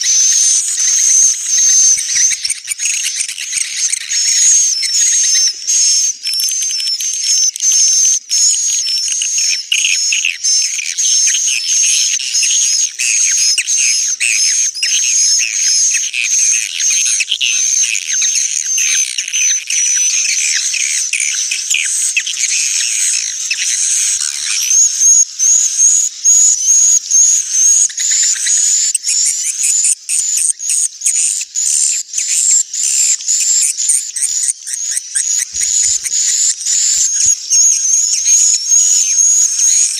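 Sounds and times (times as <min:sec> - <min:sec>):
swiftlet chirps and twitters: 0:33.4 - 0:39.9.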